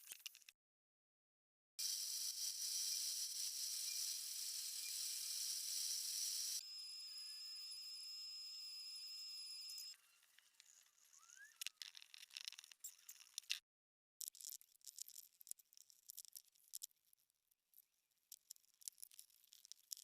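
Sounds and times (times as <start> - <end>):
steady high tone: 1.8 - 10.0.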